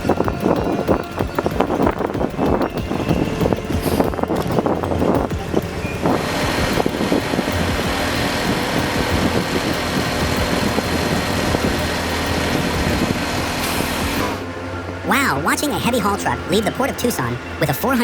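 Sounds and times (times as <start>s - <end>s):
truck engine running: 0.0s - 17.8s.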